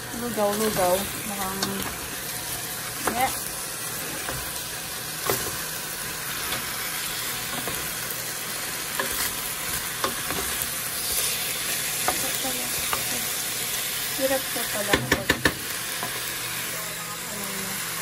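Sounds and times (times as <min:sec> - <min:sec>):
chicken sizzling in a pot: 0:00.0 - 0:18.0
wooden spoon knocking on pot: 0:14.9 - 0:15.6.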